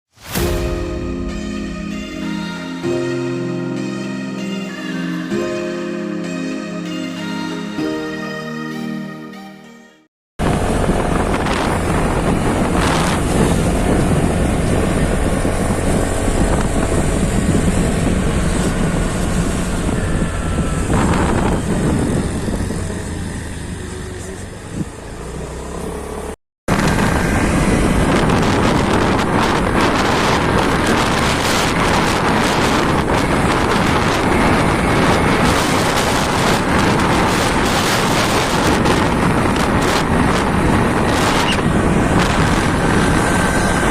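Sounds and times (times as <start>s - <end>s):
wind rushing over microphone: 10.4s - 25.1s, 26.7s - 43.9s
motorcycle road and engine noise: 10.4s - 43.9s.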